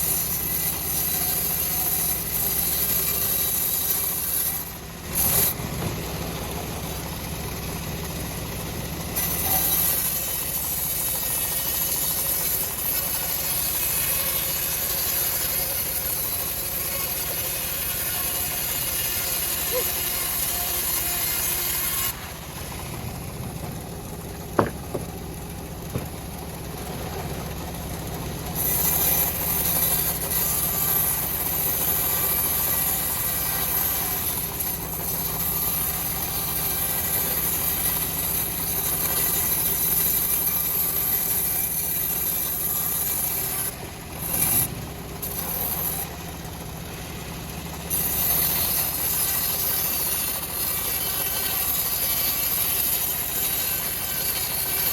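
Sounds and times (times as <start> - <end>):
bandsaw mill sawing log: 0.0 - 54.9
engine droning: 4.7 - 14.0, 18.4 - 32.2, 43.7 - 49.0.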